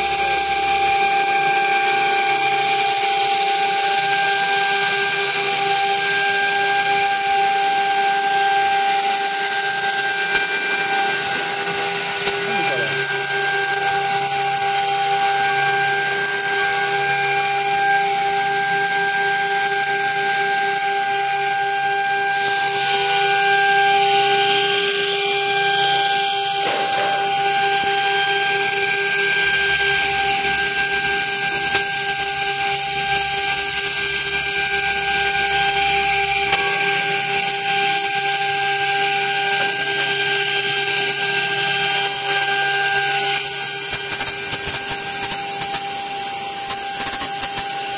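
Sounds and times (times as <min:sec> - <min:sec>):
machine spindle whining: 0:00.0 - 0:47.9
hiss: 0:22.3 - 0:27.2.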